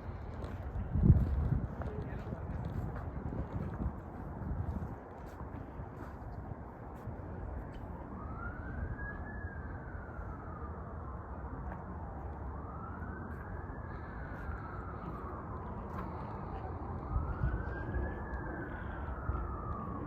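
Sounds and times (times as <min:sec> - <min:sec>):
steady background noise: 0:00.0 - 0:20.0
emergency siren wailing: 0:07.8 - 0:20.0.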